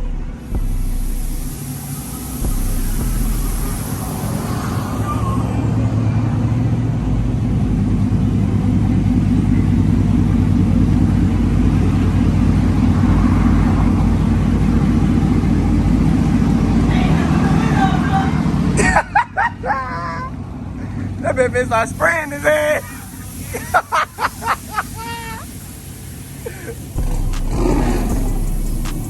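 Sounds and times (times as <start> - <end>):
mud and water spraying: 0.0 - 5.5, 21.7 - 29.0.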